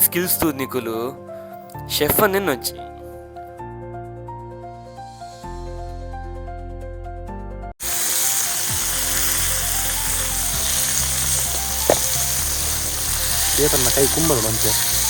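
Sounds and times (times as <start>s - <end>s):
background music: 0.0s - 15.0s
fish sizzling in hot oil: 7.8s - 15.0s.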